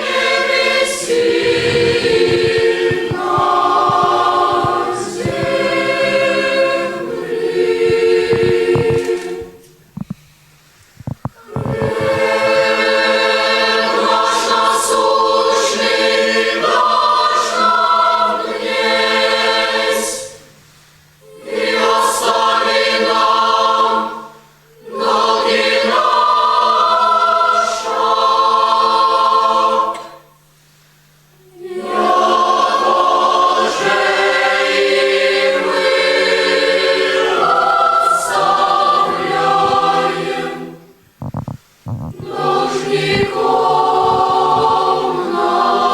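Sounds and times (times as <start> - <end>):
boys' choir singing: 0.0 - 9.6, 11.4 - 20.4, 21.2 - 30.3, 31.4 - 41.0, 42.0 - 45.9.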